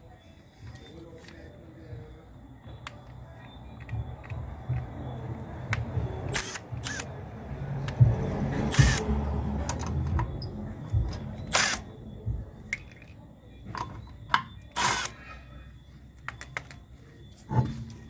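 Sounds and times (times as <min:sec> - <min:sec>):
hand tools clicking and rasping: 0:05.6 - 0:07.1, 0:08.6 - 0:10.4, 0:11.0 - 0:11.9, 0:13.8 - 0:15.3.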